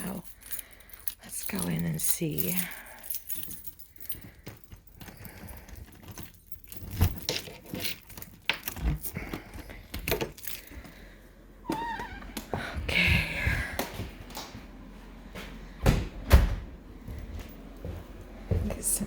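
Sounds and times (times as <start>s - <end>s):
keys jangling: 0.0s - 11.0s.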